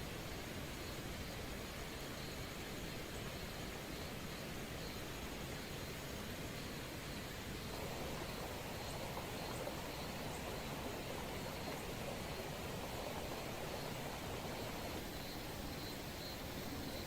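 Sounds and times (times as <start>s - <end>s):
rain falling: 7.7s - 15.8s.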